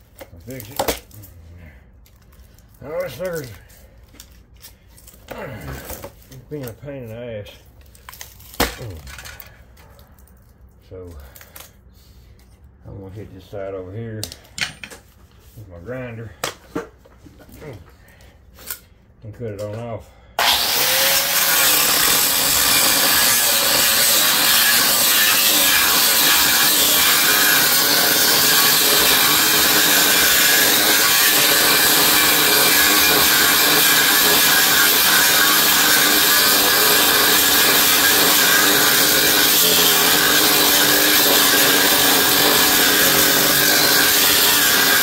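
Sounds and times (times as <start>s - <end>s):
angle grinder cutting copper: 20.4s - 45.0s.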